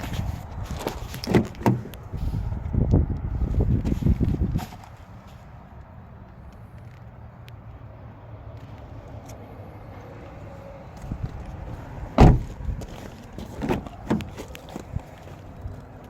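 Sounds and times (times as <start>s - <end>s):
car door shutting thud: 12.2s - 12.6s.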